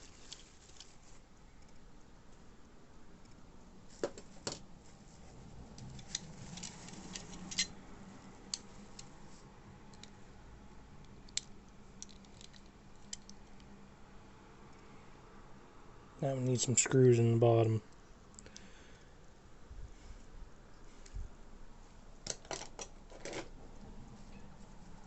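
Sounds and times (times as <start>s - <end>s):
model cars clicking and tapping: 11.0s - 13.7s.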